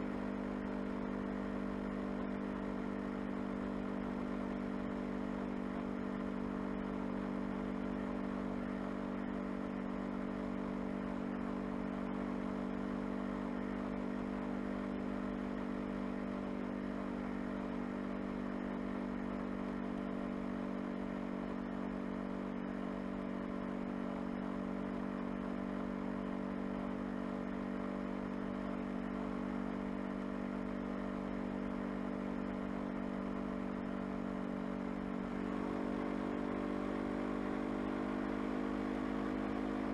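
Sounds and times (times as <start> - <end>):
motorcycle engine humming: 31.4 - 39.9.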